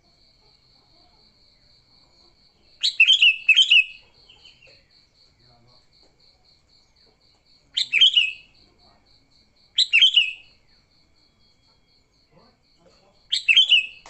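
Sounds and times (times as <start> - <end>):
bird chattering calls: 2.8 - 4.7, 7.8 - 8.6, 9.8 - 10.6, 13.3 - 14.0.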